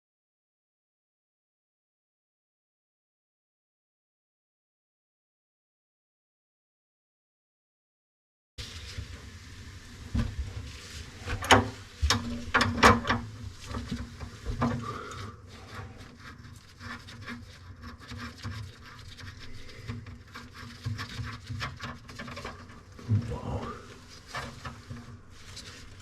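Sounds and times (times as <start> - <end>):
rubbing: 10.2 - 26.0.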